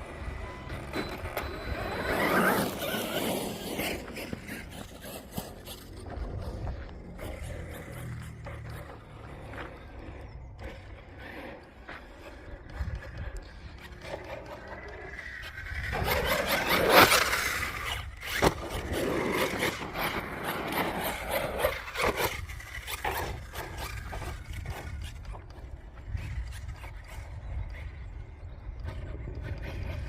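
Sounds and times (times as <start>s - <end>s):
tyres scraping over dirt: 0.0s - 27.5s.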